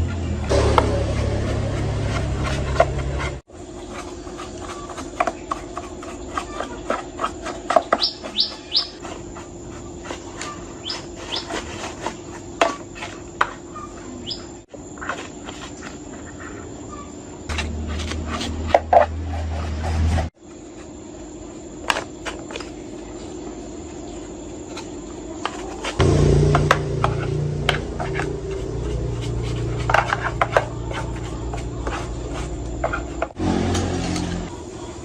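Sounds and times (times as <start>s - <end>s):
loud low hum: 0.0s - 3.5s, 26.0s - 34.6s
high bird chirps: 8.0s - 9.0s, 13.7s - 14.6s.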